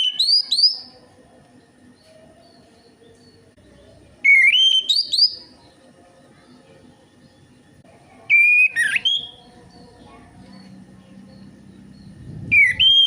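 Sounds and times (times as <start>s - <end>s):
thrush whistled song: 0.0s - 0.9s, 4.2s - 5.6s, 8.3s - 9.5s, 11.4s - 13.0s.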